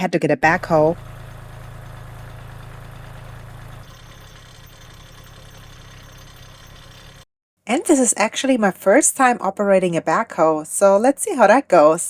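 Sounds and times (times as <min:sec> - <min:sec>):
diesel tractor engine idling: 0:00.4 - 0:07.2.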